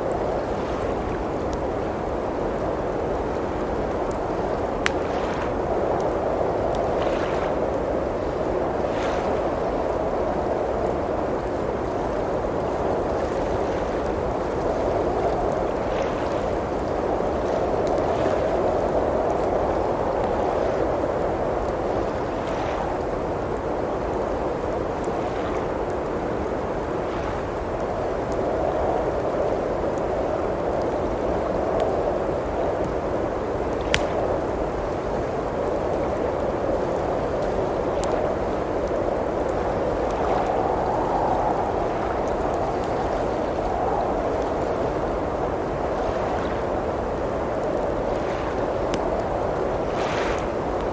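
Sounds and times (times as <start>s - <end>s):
blizzard wind rushing: 0.0s - 50.9s
faint wood fire crackles: 0.0s - 50.9s.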